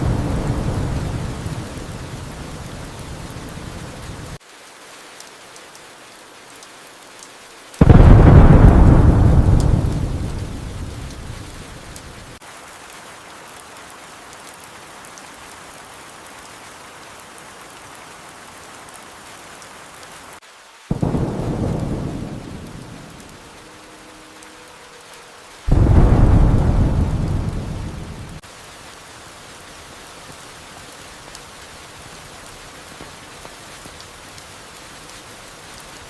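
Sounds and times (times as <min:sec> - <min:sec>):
thunder rumbling: 0:00.0 - 0:04.3, 0:07.8 - 0:12.4, 0:20.9 - 0:24.7, 0:25.7 - 0:28.4
steady rain: 0:00.0 - 0:36.0.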